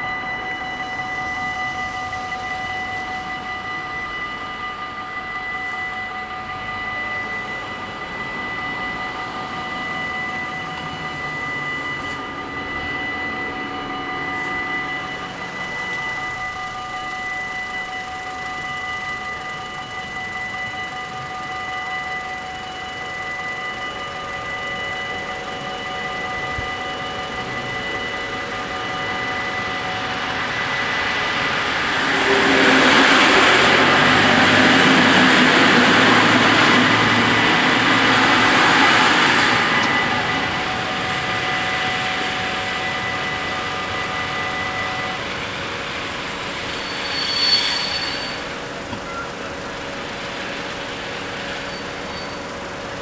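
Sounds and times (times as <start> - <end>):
train rumble and rail noise: 24.5 - 53.0.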